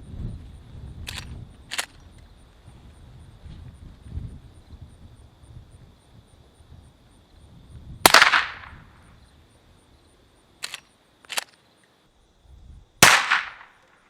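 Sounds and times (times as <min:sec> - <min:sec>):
suppressed gunshots: 0:08.1 - 0:08.8, 0:13.0 - 0:13.7
quiet clacks: 0:10.6 - 0:11.6.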